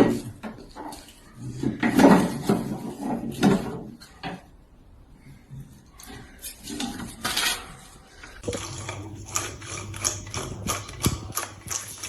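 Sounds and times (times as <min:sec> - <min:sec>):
low steady hum: 0:08.4 - 0:12.0
quick ticks: 0:08.4 - 0:12.0.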